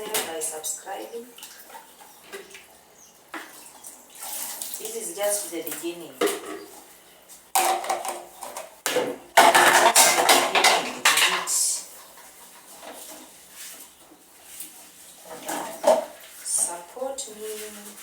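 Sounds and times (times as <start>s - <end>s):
dishes and cutlery clattering: 7.6s - 13.1s, 15.3s - 16.2s.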